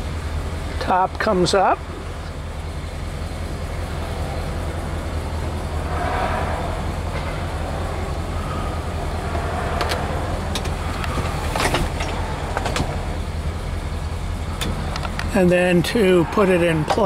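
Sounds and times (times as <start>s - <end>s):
car engine idling hum: 0.0s - 17.0s
convertible top motor: 7.1s - 15.8s.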